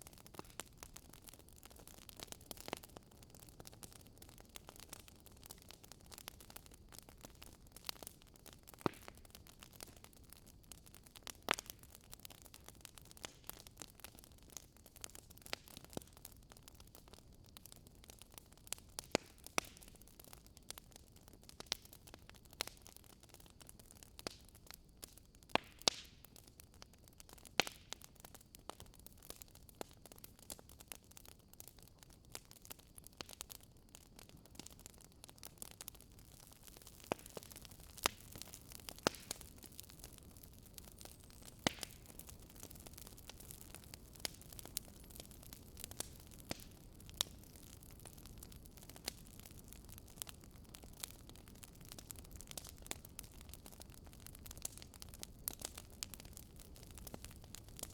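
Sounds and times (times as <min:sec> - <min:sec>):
campfire wood crackling: 0:00.0 - 0:57.9
soft fire hiss: 0:29.4 - 0:57.9.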